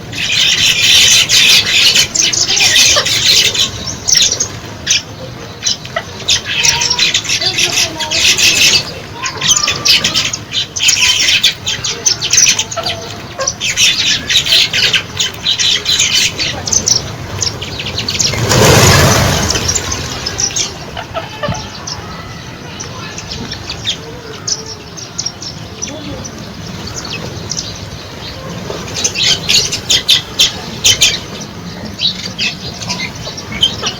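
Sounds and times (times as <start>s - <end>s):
flock of birds chirping: 0.0s - 33.9s
loud rushing whoosh: 17.2s - 20.9s.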